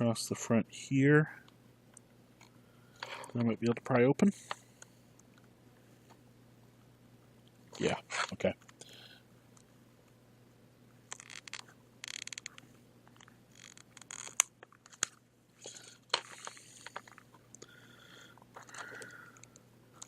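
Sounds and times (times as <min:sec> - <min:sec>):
plastic crackling and scraping: 0:11.1 - 0:17.4.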